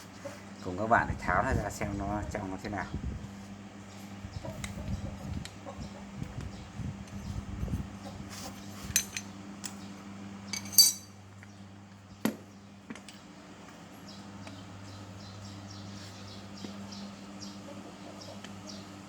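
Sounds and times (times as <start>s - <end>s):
low steady hum: 0.0s - 19.0s
metal parts clinking: 8.9s - 9.2s, 10.5s - 11.1s.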